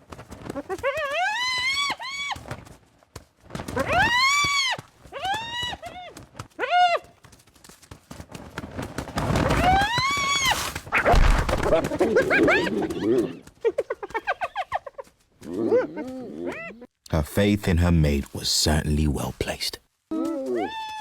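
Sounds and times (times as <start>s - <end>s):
rough scuffling noise: 10.3s - 12.1s.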